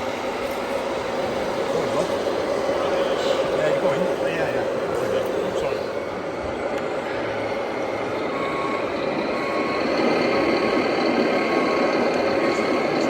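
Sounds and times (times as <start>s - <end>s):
truck engine hum: 0.0s - 13.0s
reversing beeps: 8.2s - 13.0s.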